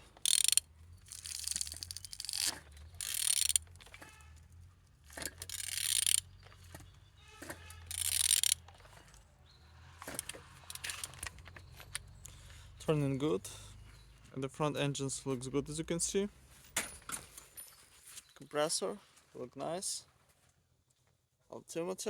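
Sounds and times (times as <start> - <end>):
ratchet wrench clicking: 0.0 - 3.9, 5.1 - 6.3, 7.8 - 8.6, 10.0 - 12.0.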